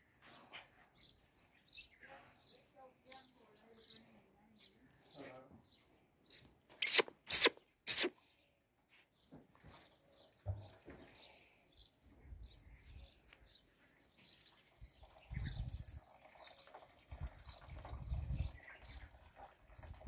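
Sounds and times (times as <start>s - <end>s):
small birds chirping: 0.5s - 20.0s.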